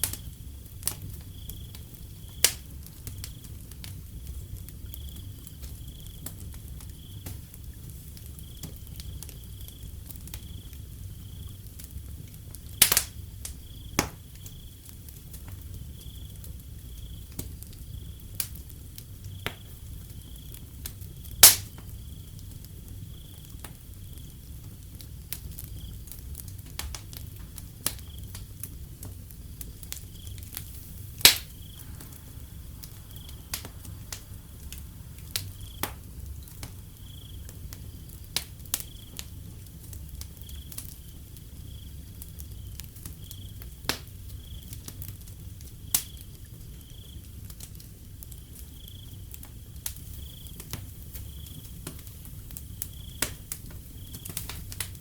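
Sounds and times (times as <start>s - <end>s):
crickets chirping: 0.0s - 55.0s
wood fire crackling and popping: 0.0s - 55.0s
low rumble: 31.0s - 38.3s.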